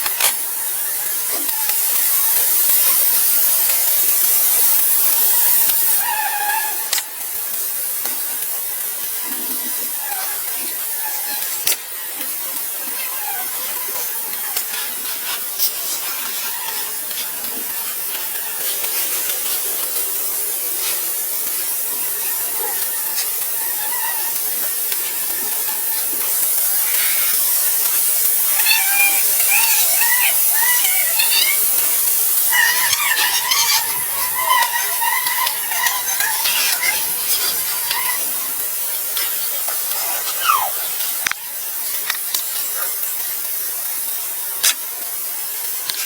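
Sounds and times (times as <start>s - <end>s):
steady high hiss: 0.0s - 46.0s
short chirping calls: 28.2s - 38.5s.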